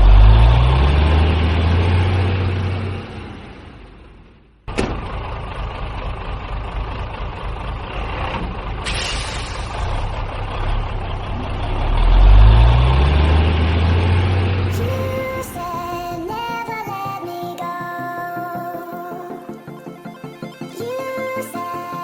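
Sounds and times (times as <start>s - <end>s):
truck engine running: 0.0s - 16.8s.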